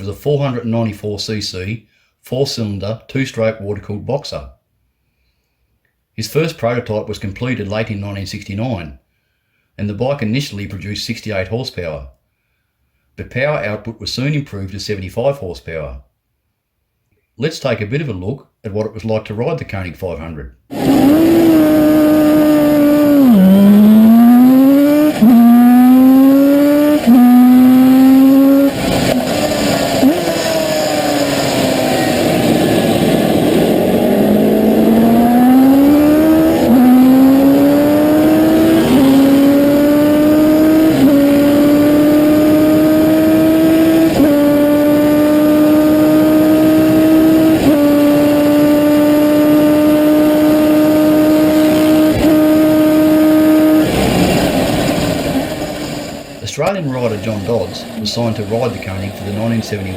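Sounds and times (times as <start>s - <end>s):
motorcycle engine accelerating: 20.7s - 59.9s.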